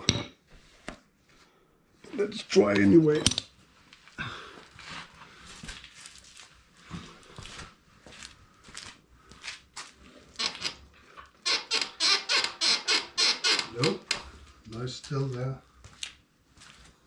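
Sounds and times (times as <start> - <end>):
motorcycle suspension squeaking: 10.4 - 10.8, 11.4 - 14.1.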